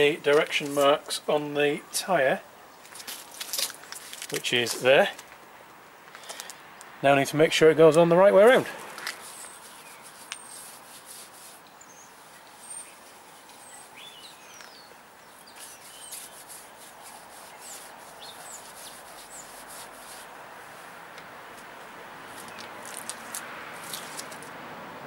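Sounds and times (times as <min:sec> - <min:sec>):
steady outdoor hiss: 0:00.0 - 0:25.0
small birds chirping: 0:08.9 - 0:20.4, 0:21.6 - 0:24.3.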